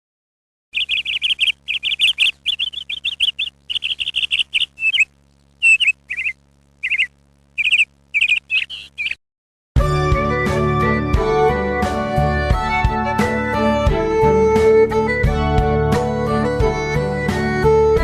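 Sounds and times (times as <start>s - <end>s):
small bird chirping: 0.8s - 9.2s.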